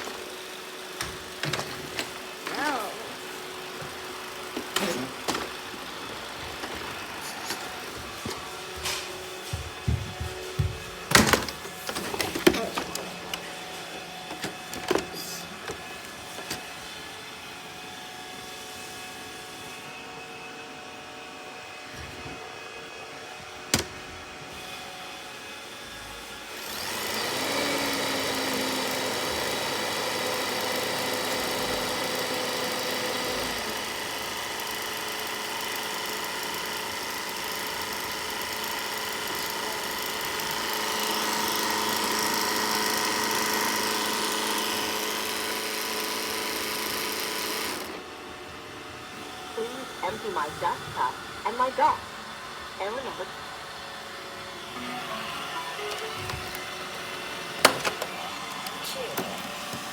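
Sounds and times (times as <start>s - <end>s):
robot vacuum motor whining: 0.0s - 17.9s, 23.6s - 59.9s.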